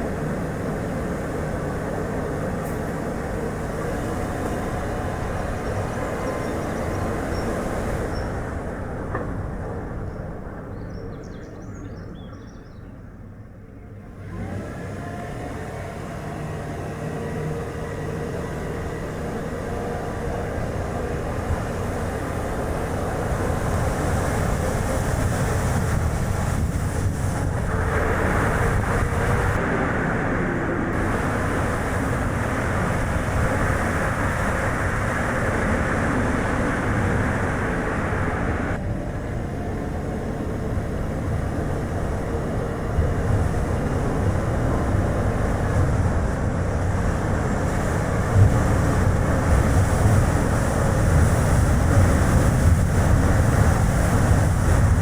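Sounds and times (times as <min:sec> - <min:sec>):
wind buffeting: 0:16.4 - 0:55.0.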